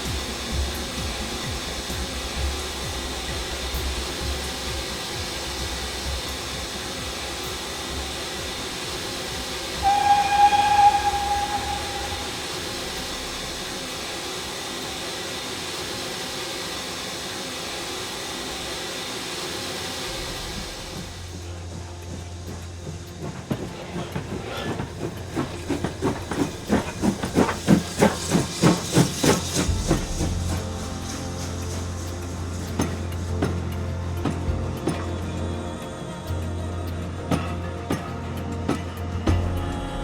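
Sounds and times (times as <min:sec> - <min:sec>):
steam locomotive hissing: 0:00.0 - 0:39.2
steam whistle blast: 0:09.7 - 0:13.8.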